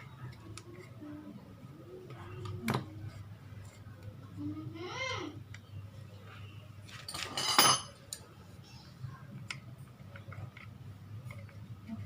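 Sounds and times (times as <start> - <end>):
metal tools clinking and scraping: 6.9 - 8.0.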